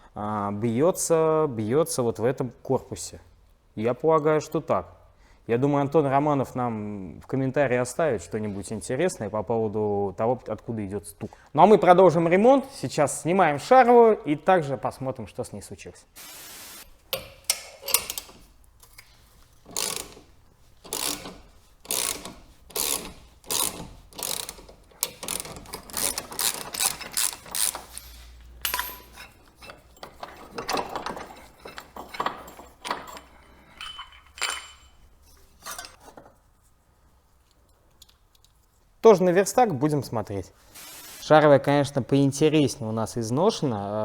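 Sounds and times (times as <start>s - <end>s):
ratchet wrench clicking: 17.1s - 18.5s, 19.7s - 29.1s.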